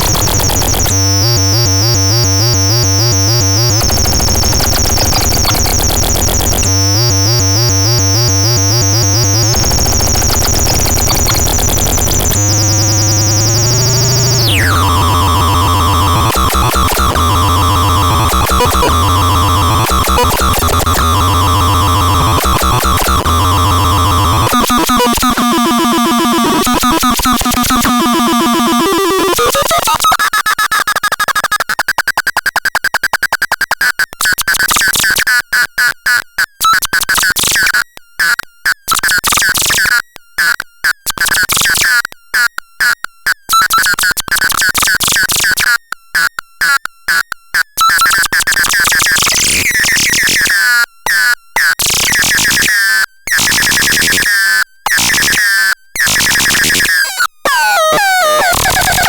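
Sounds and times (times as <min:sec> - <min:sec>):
buzzy synthesizer tone: 0:00.0 - 0:30.0, 0:56.2 - 0:59.0.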